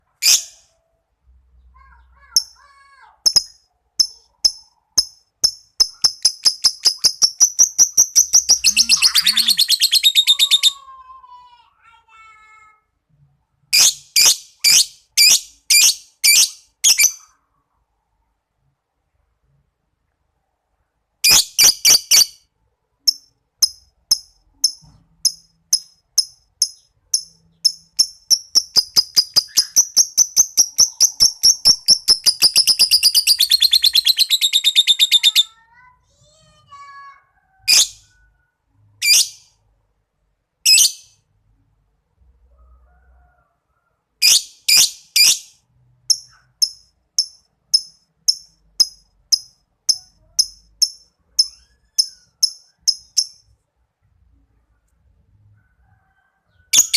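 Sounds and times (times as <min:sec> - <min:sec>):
lovebird chirping and trilling: 0:00.2 - 0:00.8, 0:01.6 - 0:10.9, 0:13.7 - 0:17.4, 0:21.2 - 0:22.4, 0:23.1 - 0:35.9, 0:37.6 - 0:38.3, 0:39.0 - 0:39.5, 0:40.7 - 0:41.2, 0:44.2 - 0:53.5, 0:56.6 - 0:56.9
harsh bird calls: 0:05.9 - 0:11.0, 0:26.7 - 0:35.9.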